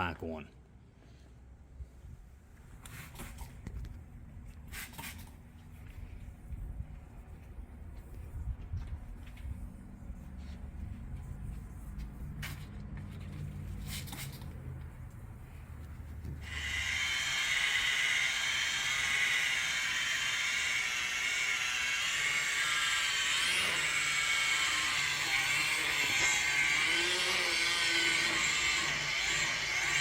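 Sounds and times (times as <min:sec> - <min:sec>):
electric polisher whining: 0:16.4 - 0:30.0.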